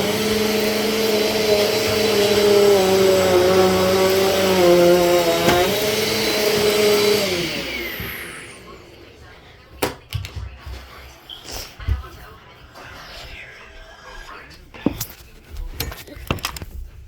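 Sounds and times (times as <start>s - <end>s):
vacuum cleaner motor whining: 0.0s - 9.3s.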